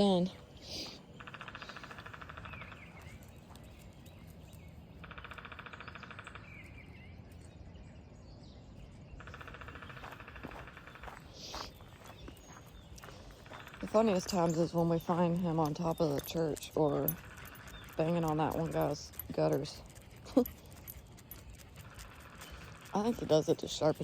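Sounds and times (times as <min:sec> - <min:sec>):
woodpecker drumming: 0:00.7 - 0:03.1, 0:04.9 - 0:06.5, 0:09.2 - 0:23.8.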